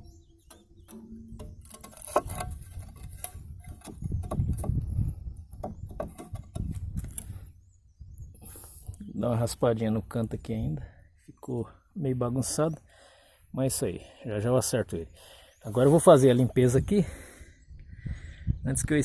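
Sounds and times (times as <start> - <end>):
brick knocking and scraping: 0.6 - 7.2.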